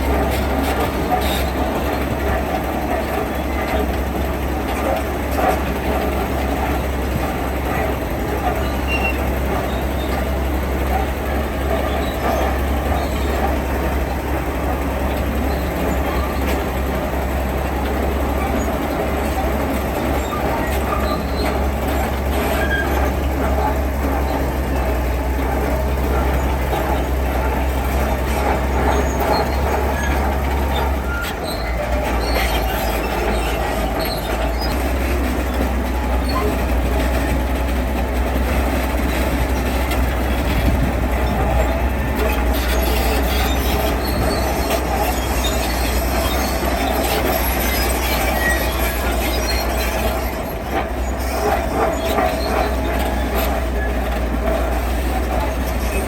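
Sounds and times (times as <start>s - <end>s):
crawler tracks squealing and clanking: 0.0s - 56.0s
heavy diesel machine running: 0.0s - 56.0s.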